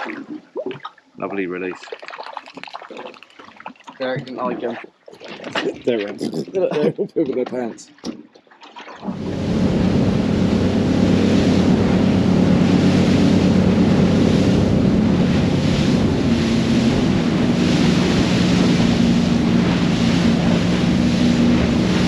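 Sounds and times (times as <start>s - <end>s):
water rushing against hull: 0.0s - 22.0s
motorboat engine running: 9.0s - 22.0s
wind buffeting microphone: 9.0s - 22.0s.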